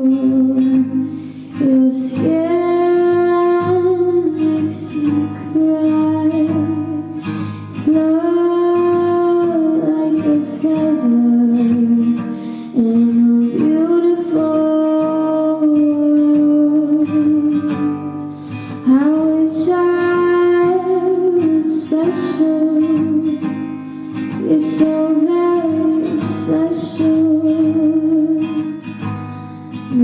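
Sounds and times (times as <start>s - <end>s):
woman singing long notes: 0.0s - 1.0s, 18.8s - 23.4s, 24.4s - 28.7s
strummed guitar: 0.0s - 30.0s.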